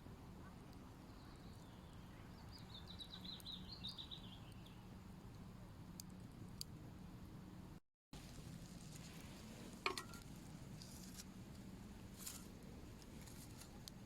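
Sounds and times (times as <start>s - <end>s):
songbird twittering: 1.1s - 4.8s.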